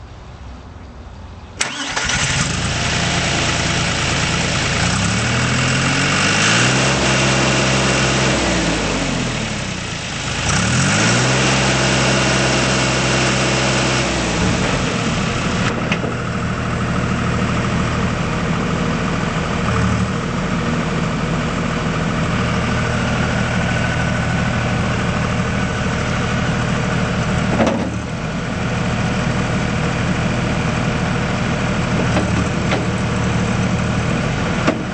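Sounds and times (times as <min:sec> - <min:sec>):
diesel engine starting and revving: 0:01.5 - 0:34.9.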